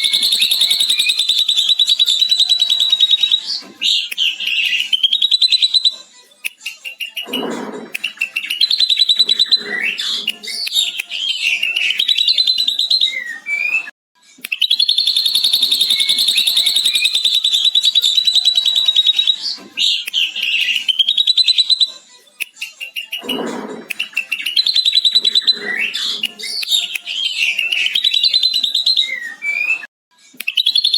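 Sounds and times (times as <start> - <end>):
fast chattering bird trill: 0.0 - 6.0, 14.6 - 21.9, 22.6 - 29.3
drongo singing: 0.0 - 13.2, 15.0 - 29.4.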